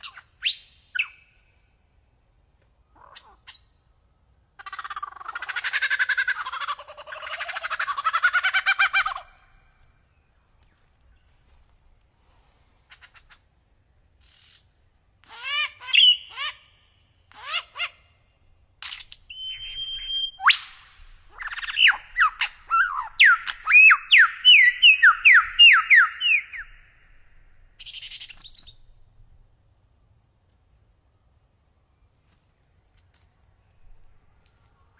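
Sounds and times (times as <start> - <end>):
bird singing: 18.3 - 29.2.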